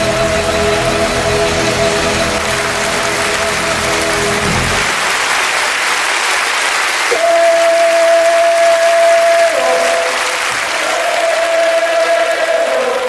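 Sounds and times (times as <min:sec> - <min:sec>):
voice holding long note: 0:00.0 - 0:05.4
audience applauding: 0:00.0 - 0:13.0.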